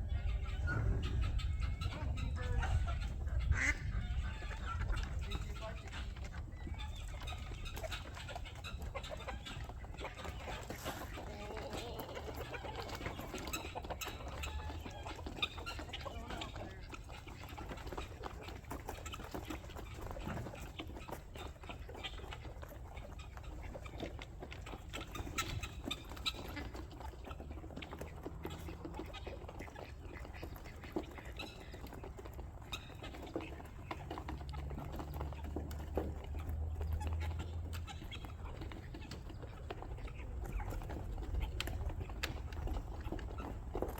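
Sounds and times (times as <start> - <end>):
chickens ducks and guinea fowl calling: 0.0 - 43.9.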